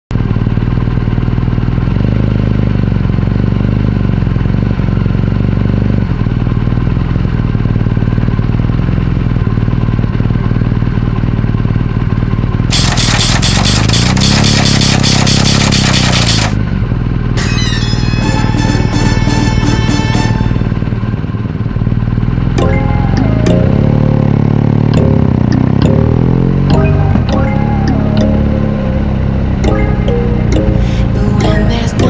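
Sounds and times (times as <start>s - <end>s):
motorcycle engine running: 0.1s - 17.4s, 18.6s - 32.0s
electronic music with beat: 29.7s - 32.0s.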